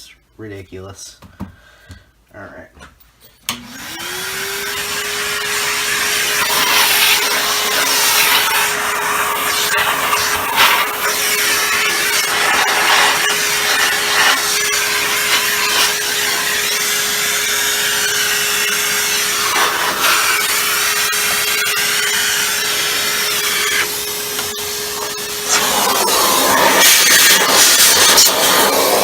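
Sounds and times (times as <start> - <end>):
vacuum cleaner running: 3.5 - 29.0
rubbing and scraping: 6.1 - 17.3.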